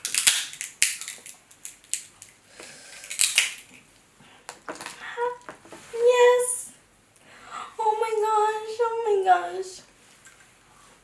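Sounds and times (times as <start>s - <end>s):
crab shells cracking: 0.0s - 3.8s.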